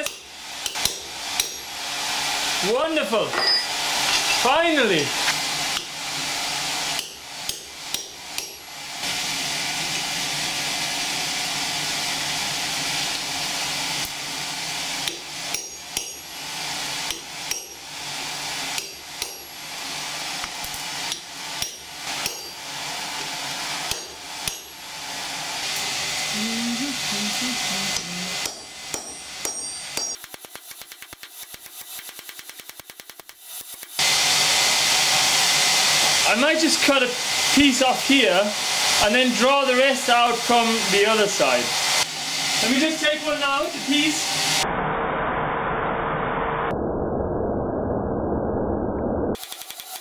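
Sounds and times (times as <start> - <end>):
hammer striking steel on anvil: 0.0 - 1.7, 3.3 - 4.5, 7.0 - 8.6, 15.0 - 16.4, 17.0 - 17.8, 18.8 - 19.6, 20.7 - 22.6, 23.9 - 24.8, 28.4 - 31.0.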